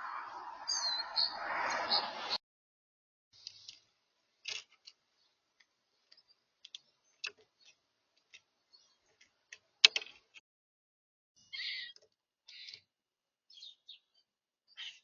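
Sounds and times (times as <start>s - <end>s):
birds pecking and tapping: 3.4s - 10.4s.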